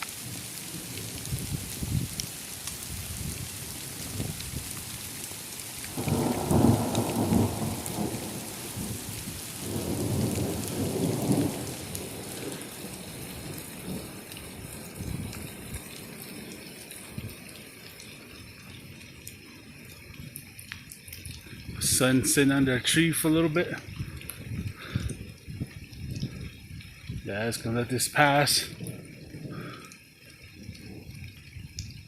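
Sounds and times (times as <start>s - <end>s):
rain and hail falling: 0.0s - 32.0s
thunder rumbling: 5.9s - 17.3s, 21.4s - 32.0s.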